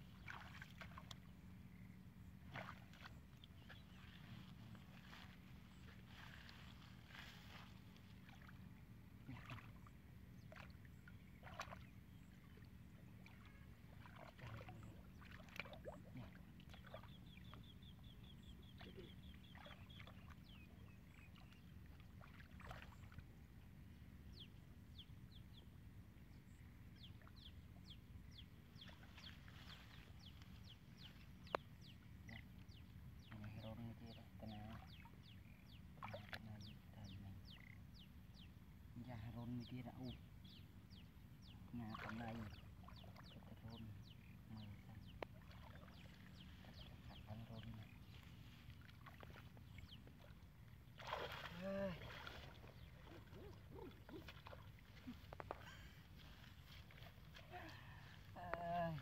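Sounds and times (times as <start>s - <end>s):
hands splashing in muddy puddle: 51.0s - 57.8s.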